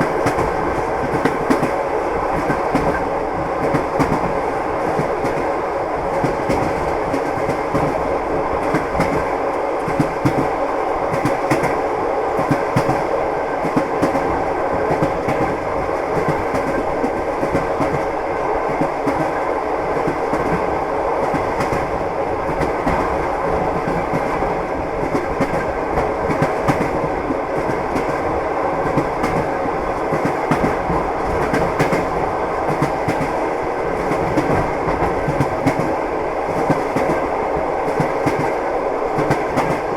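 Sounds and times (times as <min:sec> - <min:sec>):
train rumble: 0:00.0 - 0:39.9
train wheels clattering: 0:37.9 - 0:38.6.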